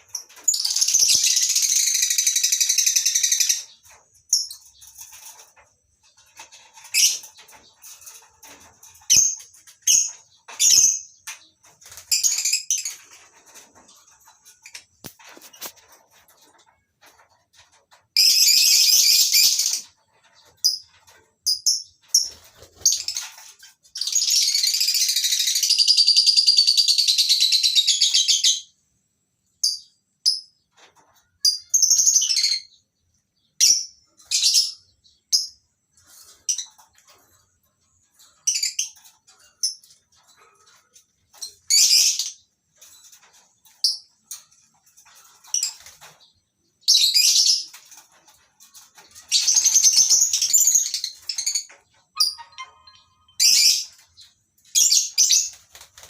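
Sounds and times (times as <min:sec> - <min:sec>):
birds chattering: 0:30.9 - 0:56.0
birds chirping shrilly: 0:49.3 - 0:54.0.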